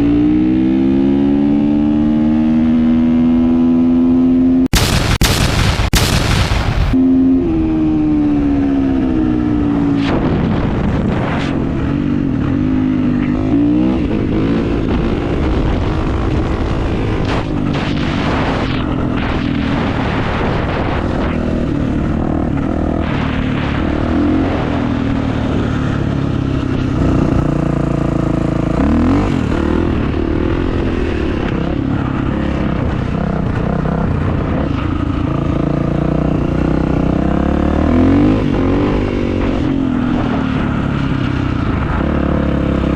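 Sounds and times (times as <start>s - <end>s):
rushing noise: 4.7s - 7.0s.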